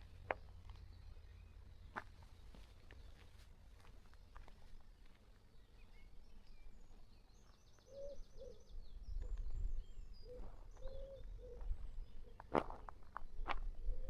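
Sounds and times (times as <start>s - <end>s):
small birds chirping: 4.1s - 14.0s.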